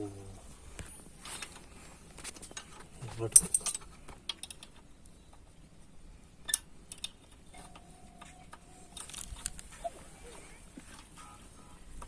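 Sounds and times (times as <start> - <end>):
faint steady tone: 4.5 - 12.0.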